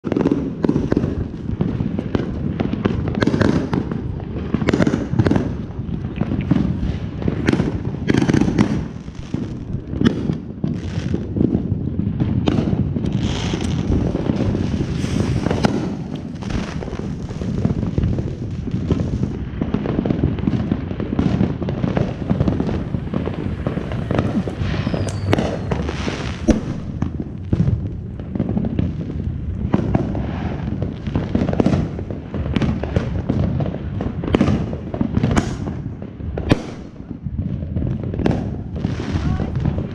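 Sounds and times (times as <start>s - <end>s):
fireworks bangs and crackling: 0.0s - 39.9s
low rumble: 4.2s - 30.8s.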